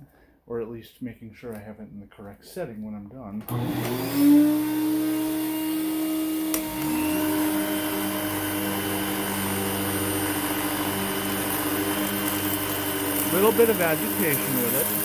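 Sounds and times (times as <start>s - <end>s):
vacuum cleaner motor running: 3.4s - 15.0s
click: 6.5s - 6.9s.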